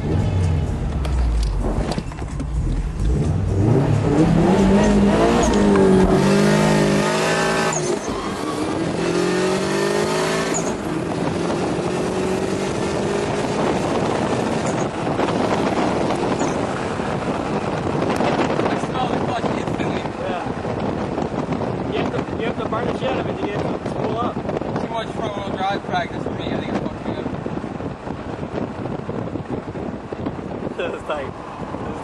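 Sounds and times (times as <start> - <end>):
road noise drone: 0.0 - 32.0
car engine revving hard: 2.6 - 22.5.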